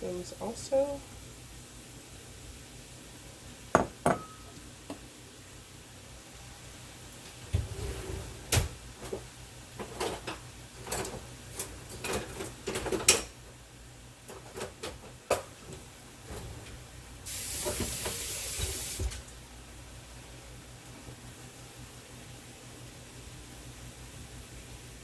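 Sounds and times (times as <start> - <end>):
steady hiss: 17.2 - 19.4.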